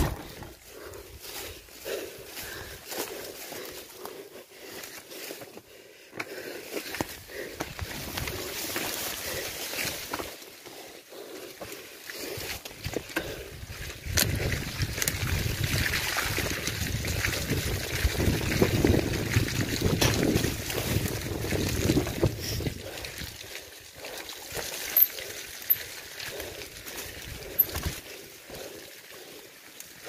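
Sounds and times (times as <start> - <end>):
bike tyres rumbling through mud: 0.0 - 30.0
wind buffeting microphone: 13.3 - 23.3.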